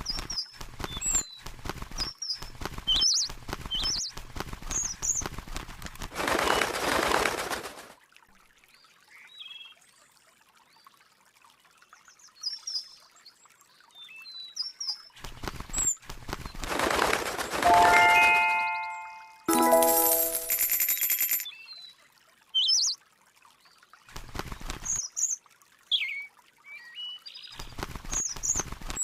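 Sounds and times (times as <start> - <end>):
ringing chime notes: 17.6 - 21.4.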